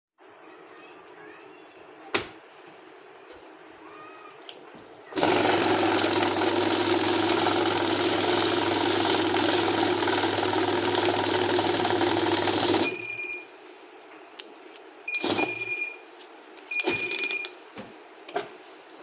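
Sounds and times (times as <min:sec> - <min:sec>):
banknote counting machine running: 0:05.2 - 0:13.1, 0:15.2 - 0:15.8, 0:16.8 - 0:17.4.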